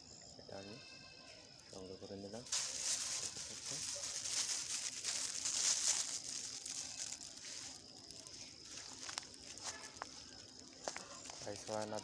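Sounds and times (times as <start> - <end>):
plastic bag rustling: 2.5 - 12.0.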